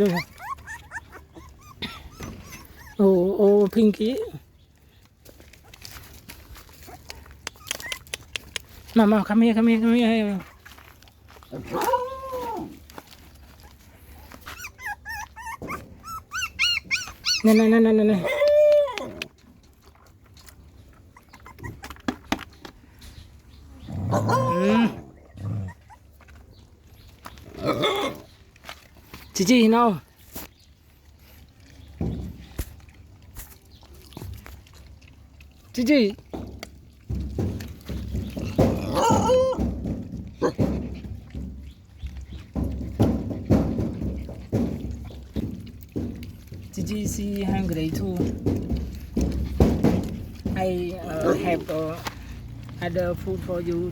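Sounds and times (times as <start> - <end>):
puppy whining: 0.0 - 3.3, 6.8 - 8.5, 13.5 - 19.3, 21.0 - 22.1, 24.1 - 26.6, 38.3 - 39.8
puppies chewing and crunching: 0.0 - 53.9
dog growl-whine: 23.8 - 26.1.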